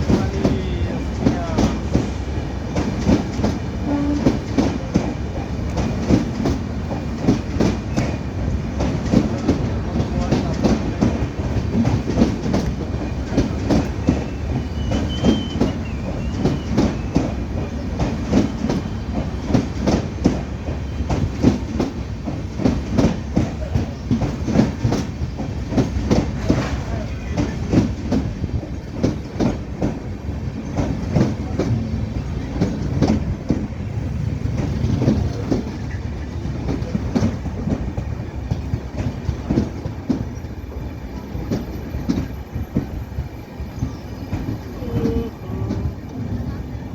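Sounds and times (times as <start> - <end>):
train rumbling: 0.0 - 46.9.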